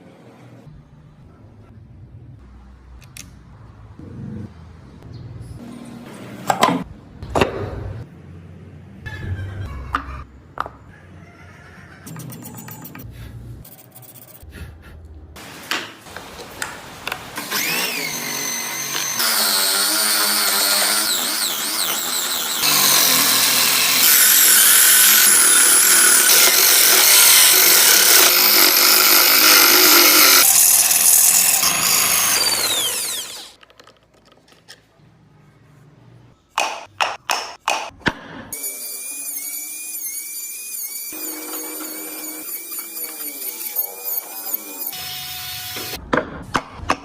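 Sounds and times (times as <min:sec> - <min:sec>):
power tool cutting wood: 0:17.3 - 0:33.6, 0:38.6 - 0:46.0
small high-speed tool whining: 0:17.4 - 0:33.6, 0:38.6 - 0:46.0.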